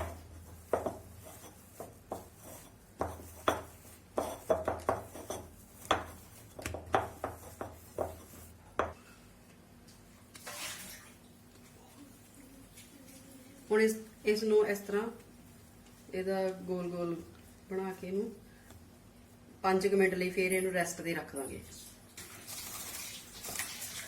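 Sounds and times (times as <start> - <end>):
dough being kneaded in a bowl: 0.0 - 8.9.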